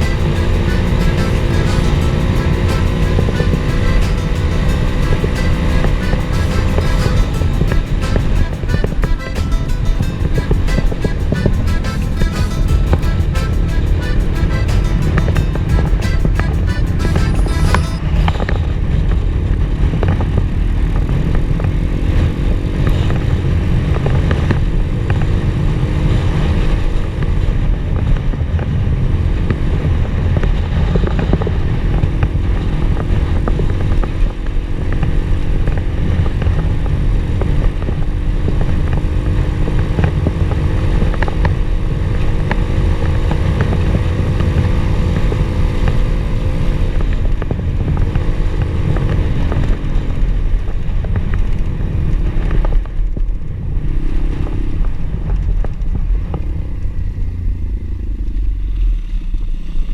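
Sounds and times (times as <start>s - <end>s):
pit bike engine running: 0.0s - 18.0s
wind rumble on microphone: 18.0s - 59.9s.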